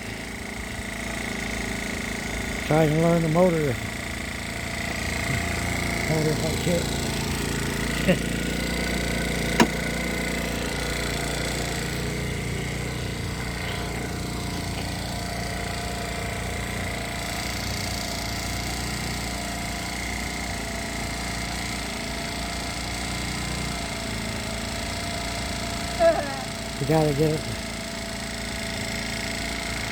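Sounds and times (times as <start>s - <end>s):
motorcycle engine idling: 0.0s - 29.9s.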